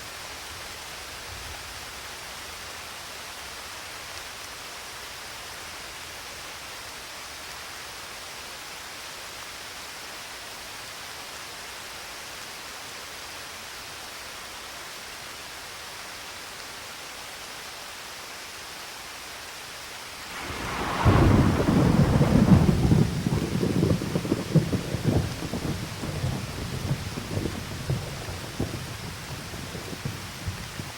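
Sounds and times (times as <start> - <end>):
steady rain hiss: 0.0 - 30.9
thunder crack and rumble: 20.3 - 30.9.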